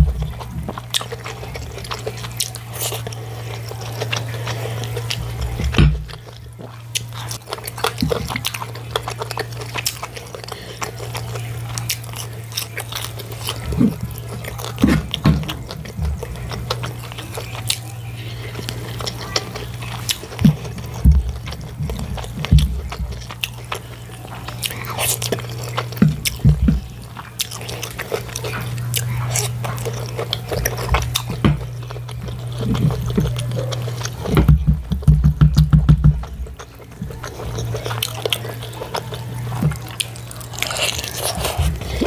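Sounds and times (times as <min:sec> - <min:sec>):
close chewing and wet mouth sounds: 0:00.0 - 0:42.0
steady low hum: 0:00.0 - 0:42.0.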